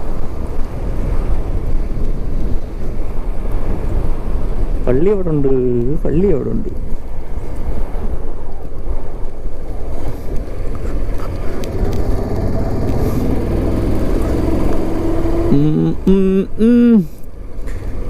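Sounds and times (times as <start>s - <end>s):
road and wind noise: 0.0s - 18.0s
motorcycle engine running: 11.2s - 15.8s.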